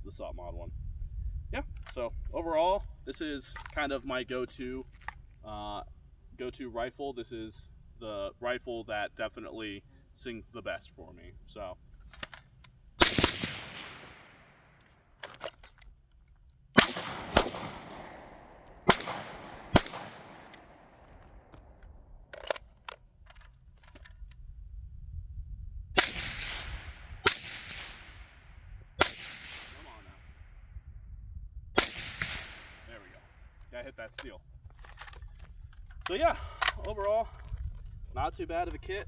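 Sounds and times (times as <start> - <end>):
gunshots echoing: 13.0 - 14.7, 16.8 - 21.8, 26.0 - 28.4, 29.0 - 30.3, 31.8 - 33.3.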